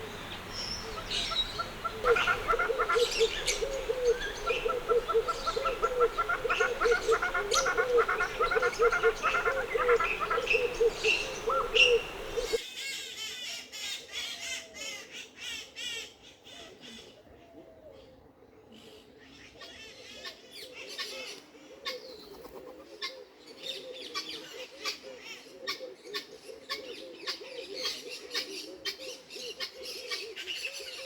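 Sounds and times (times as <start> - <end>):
bird repeating low notes: 0.0 - 12.6.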